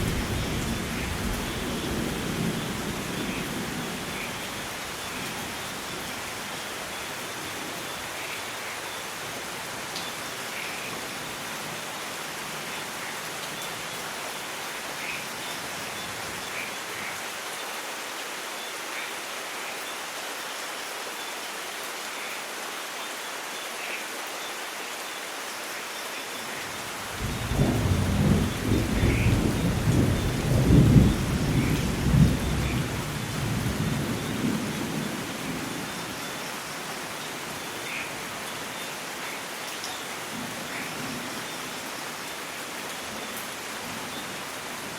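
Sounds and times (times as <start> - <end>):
steady rain: 0.0 - 44.9
thunder rumbling: 27.2 - 35.3.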